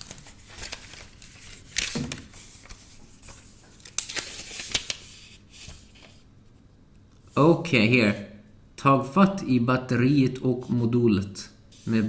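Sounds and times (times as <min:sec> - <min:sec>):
paper rustling and crinkling: 0:00.0 - 0:06.3.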